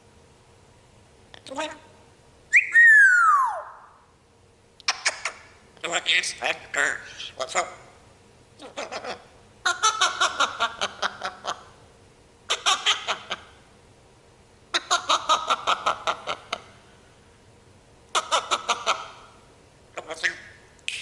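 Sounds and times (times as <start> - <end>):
parrot mimicking laughter: 2.6 - 3.9, 8.6 - 11.8, 12.5 - 13.6, 14.7 - 16.8, 18.1 - 19.2.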